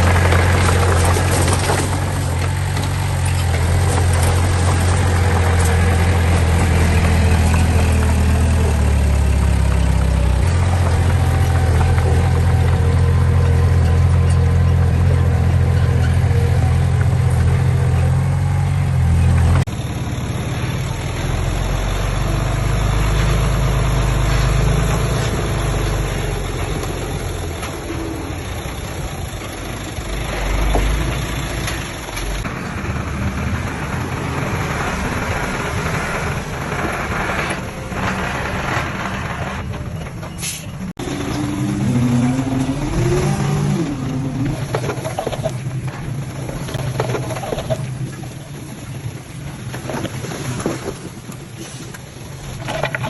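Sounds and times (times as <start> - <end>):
diesel trucks and bulldozer working: 0.0 - 53.0.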